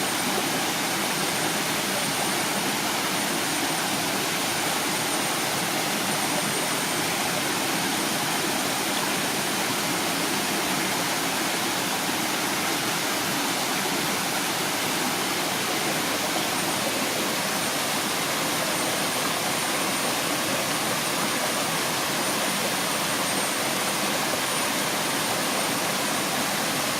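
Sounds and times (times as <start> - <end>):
waterfall roaring: 0.0 - 26.9.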